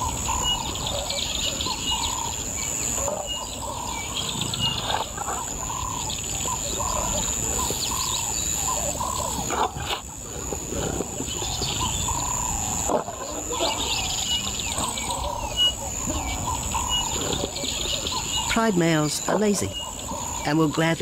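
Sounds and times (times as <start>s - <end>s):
high insect drone: 0.0s - 21.0s
lions growling: 2.9s - 20.4s
bird chirps: 11.2s - 21.0s.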